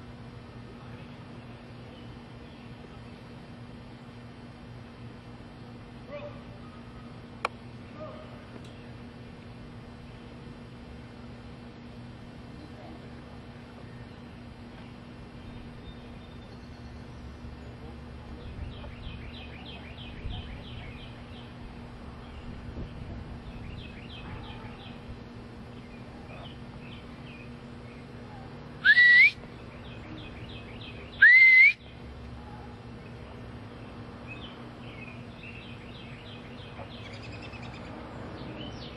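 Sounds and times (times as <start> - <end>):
birds chirping: 0.0 - 38.9
short rising whistles: 28.8 - 29.4, 31.2 - 31.8.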